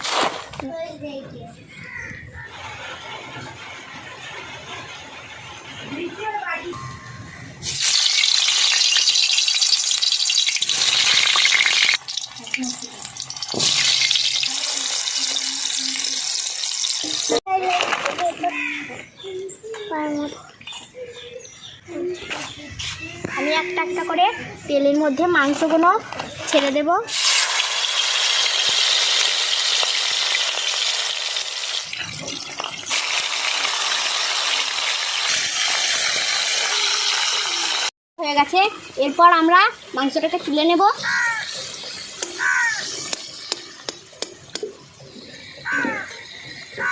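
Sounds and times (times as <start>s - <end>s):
hot oil sizzling in a pan: 7.6s - 17.4s, 27.1s - 37.9s.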